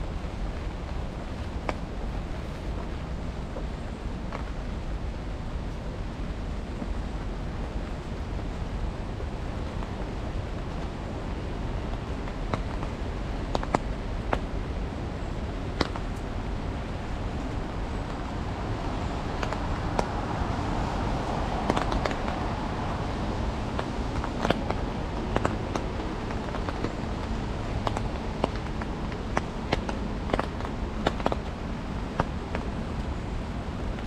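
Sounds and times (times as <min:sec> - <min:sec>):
city noise: 0:00.0 - 0:34.0
rain hiss: 0:00.0 - 0:34.0
raindrops tapping on umbrella: 0:07.8 - 0:14.8, 0:15.6 - 0:34.0.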